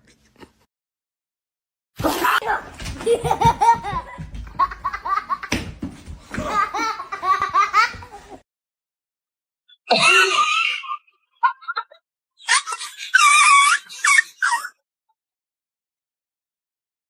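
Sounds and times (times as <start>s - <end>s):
people laughing: 2.0s - 8.4s, 10.0s - 14.7s
high-pitched cry: 9.9s - 11.8s, 12.4s - 14.8s.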